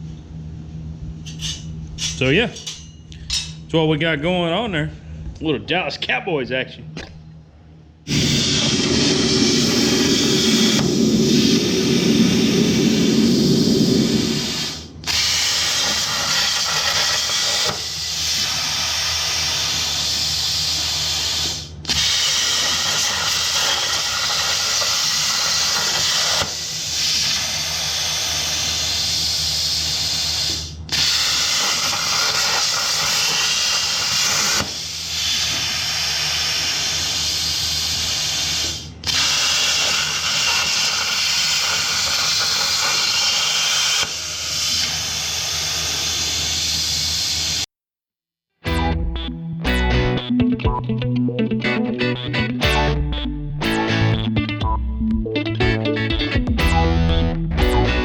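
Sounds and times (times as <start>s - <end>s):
low hum: 7.2s - 16.1s
plasma arc hissing: 8.1s - 47.6s.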